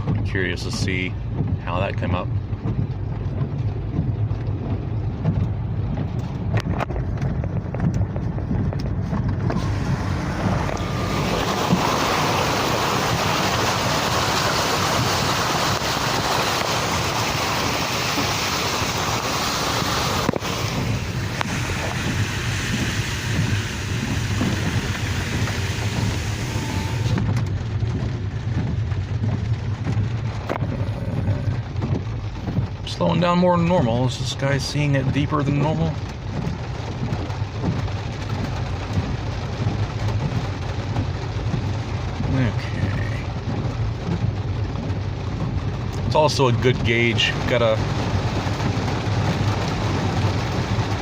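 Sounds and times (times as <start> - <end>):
engine and tyre rumble: 0.0 - 51.0
rain and water spray hissing: 0.0 - 51.0
hiss of water spray: 9.6 - 27.2.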